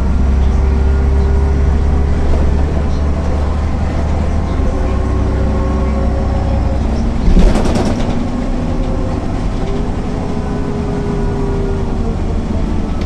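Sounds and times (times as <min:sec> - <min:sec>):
bus diesel engine running: 0:00.0 - 0:13.0
steady whine: 0:00.0 - 0:13.0
loud rattling knock: 0:07.2 - 0:08.4.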